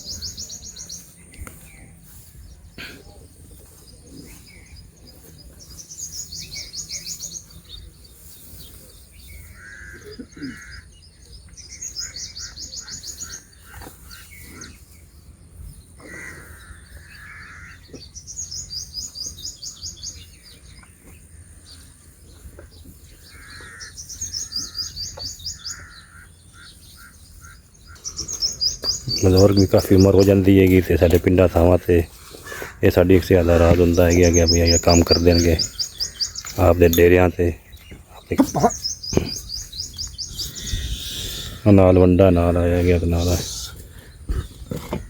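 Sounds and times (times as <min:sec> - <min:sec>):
short lower bird calls: 0:08.6 - 0:14.9, 0:22.6 - 0:30.8, 0:32.4 - 0:41.9
bird trilling: 0:11.6 - 0:14.7, 0:23.2 - 0:31.8, 0:32.4 - 0:41.8.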